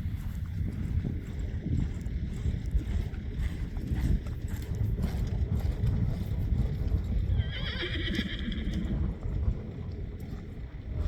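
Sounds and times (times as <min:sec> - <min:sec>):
horse whinnying: 0:07.3 - 0:08.9.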